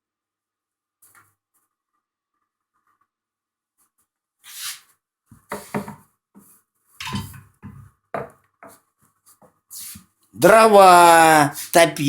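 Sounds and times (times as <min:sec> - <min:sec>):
metal tools scraping and rustling: 0:07.0 - 0:07.4.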